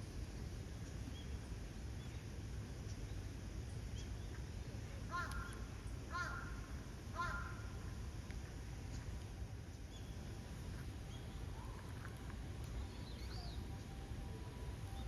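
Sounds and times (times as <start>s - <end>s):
bird calling: 5.1s - 6.6s, 7.2s - 7.6s.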